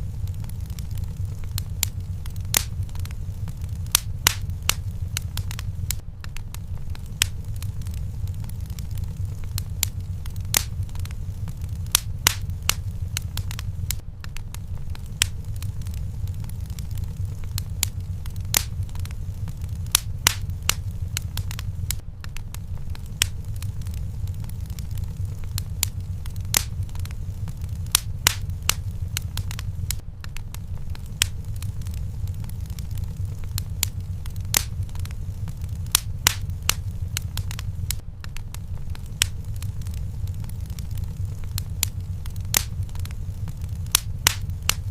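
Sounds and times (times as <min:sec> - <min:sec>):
fire crackling and popping: 0:00.0 - 0:44.9.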